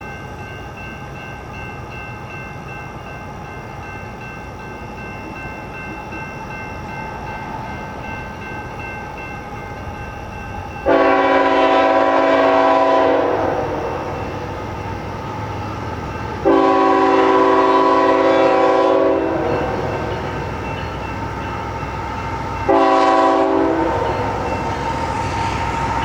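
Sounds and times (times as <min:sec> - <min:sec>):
locomotive rumble: 0:02.6 - 0:26.0
locomotive air horn blast: 0:10.9 - 0:14.2, 0:16.4 - 0:19.8, 0:22.7 - 0:24.4.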